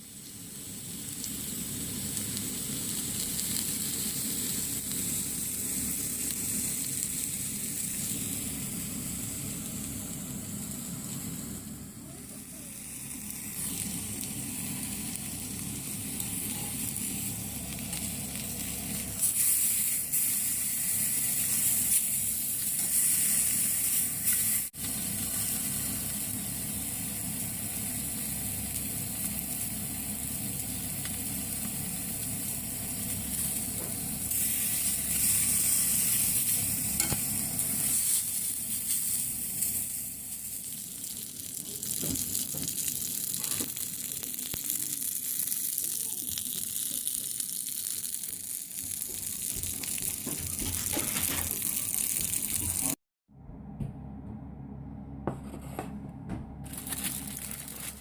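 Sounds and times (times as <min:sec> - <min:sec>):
beef sizzling over campfire: 0:00.0 - 0:53.0.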